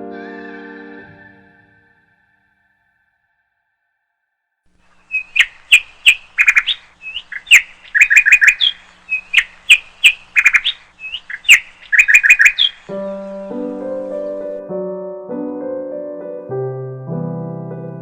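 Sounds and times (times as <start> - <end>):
piano music: 0.0 - 2.1, 12.9 - 18.0
bird chirping: 4.8 - 14.6.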